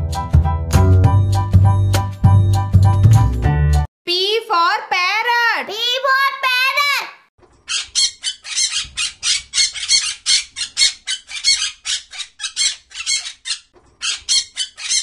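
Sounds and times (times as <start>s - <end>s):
parakeet squawking harshly: 7.7s - 15.0s.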